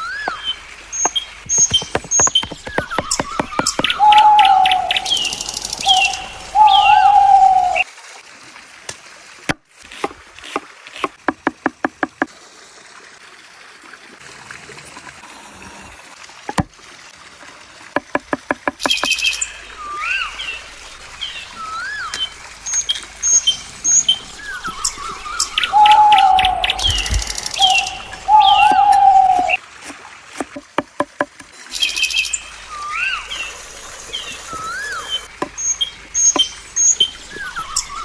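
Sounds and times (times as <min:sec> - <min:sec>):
birds chirping: 0:00.0 - 0:07.8, 0:18.0 - 0:29.6, 0:30.4 - 0:38.0.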